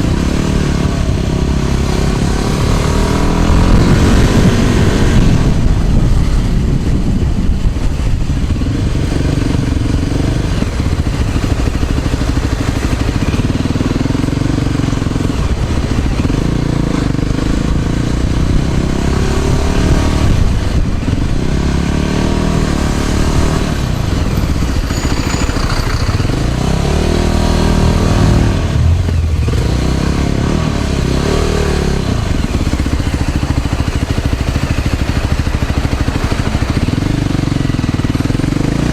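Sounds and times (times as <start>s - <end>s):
wind rumble on microphone: 0.0s - 25.1s
vehicle engines passing: 0.0s - 38.9s.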